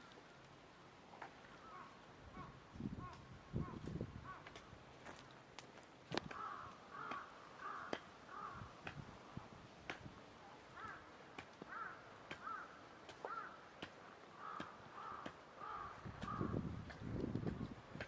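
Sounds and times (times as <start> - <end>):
crow cawing: 1.6 - 4.6, 6.2 - 8.8, 10.7 - 16.6.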